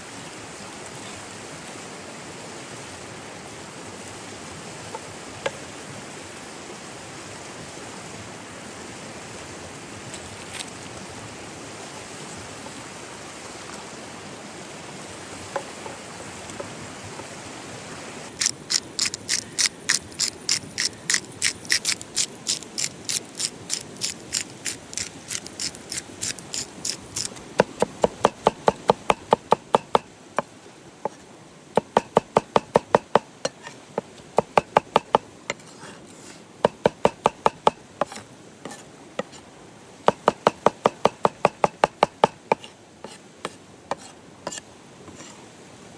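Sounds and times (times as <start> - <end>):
steady hiss: 0.0 - 45.9
knife chopping on wooden board: 26.8 - 30.5, 31.8 - 33.7, 34.4 - 35.6, 36.6 - 39.4, 40.1 - 42.7, 43.9 - 44.6.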